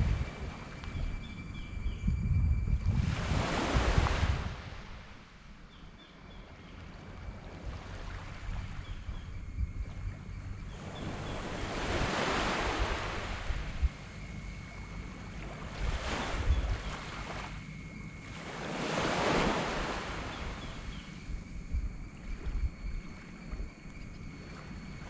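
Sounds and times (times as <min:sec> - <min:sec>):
small waves washing up beach: 0:10.8 - 0:13.8, 0:18.3 - 0:21.2.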